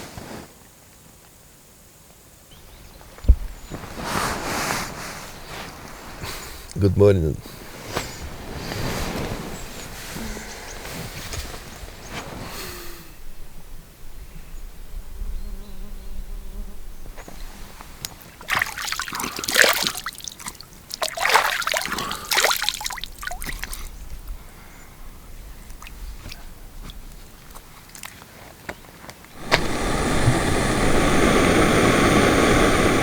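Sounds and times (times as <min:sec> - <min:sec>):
water trickling and splashing: 0:18.0 - 0:24.4, 0:25.4 - 0:28.6.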